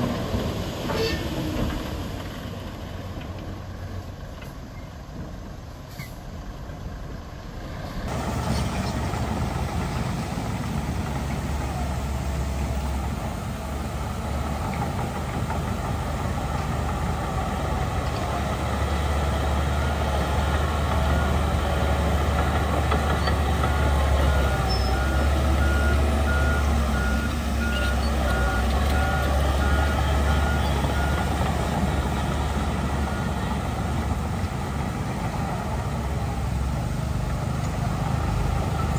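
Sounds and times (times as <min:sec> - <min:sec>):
heavy diesel machinery rumbling: 0:00.0 - 0:38.9
reversing alarm beeping: 0:23.7 - 0:33.6.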